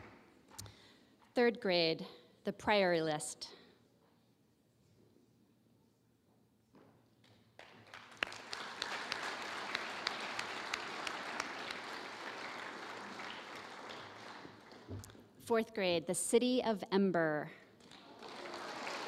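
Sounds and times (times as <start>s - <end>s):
audience applauding: 7.6s - 15.0s, 17.8s - 19.0s.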